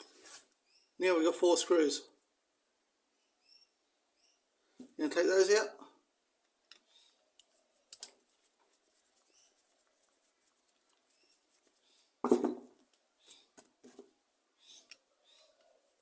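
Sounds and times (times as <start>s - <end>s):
loud knock: 12.2s - 12.7s.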